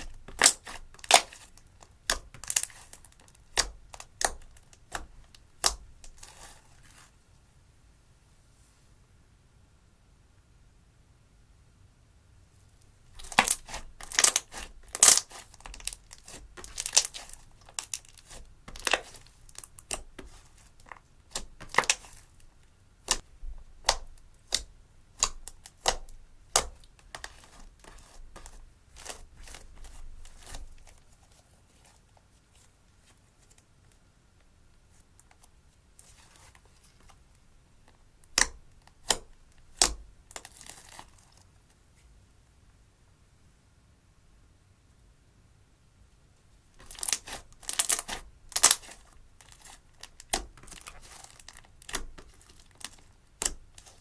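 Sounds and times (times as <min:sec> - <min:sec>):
slime popping and crackling: 0:00.0 - 0:06.5, 0:13.1 - 0:31.0, 0:46.8 - 0:54.0.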